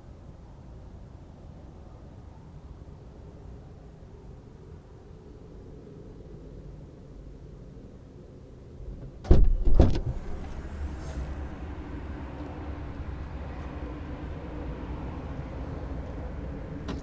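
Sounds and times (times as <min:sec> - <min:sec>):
car cabin low rumble: 0:08.8 - 0:17.0.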